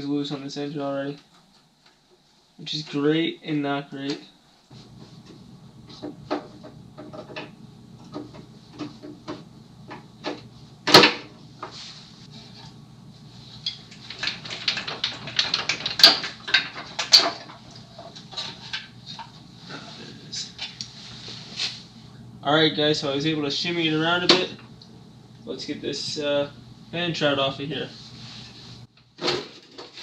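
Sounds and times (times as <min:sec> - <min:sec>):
sheet metal clicking and clanking: 0:13.7 - 0:17.6.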